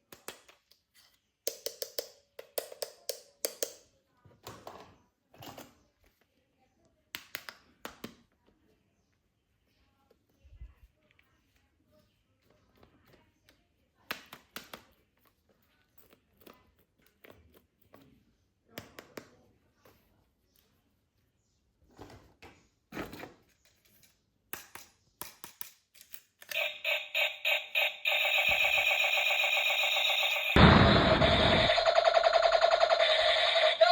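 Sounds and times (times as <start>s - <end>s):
toy gun electronic sound effect: 26.5s - 33.9s.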